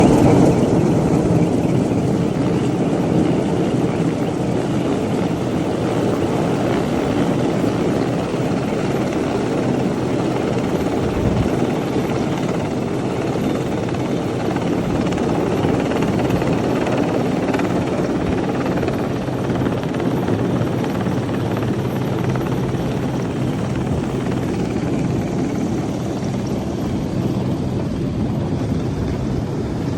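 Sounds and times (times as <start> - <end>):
helicopter rotor and engine: 0.0 - 29.9.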